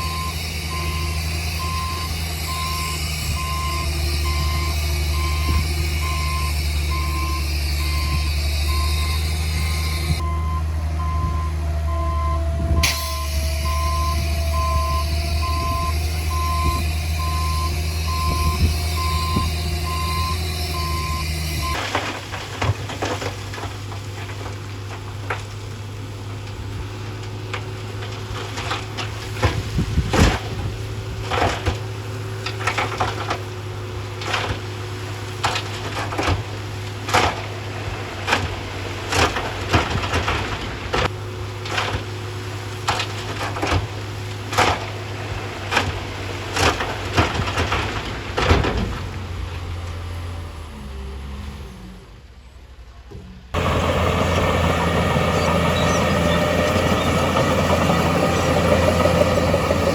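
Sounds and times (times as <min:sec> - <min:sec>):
reversing alarm beeping: 0:00.0 - 0:21.8, 0:53.6 - 0:59.9
engine running steadily: 0:00.0 - 0:52.3, 0:53.1 - 0:59.9
heavy diesel machinery running: 0:00.0 - 0:52.8, 0:53.5 - 0:59.9
irregular knocks and cracks: 0:35.4 - 0:37.6, 0:38.2 - 0:42.2, 0:42.8 - 0:49.2.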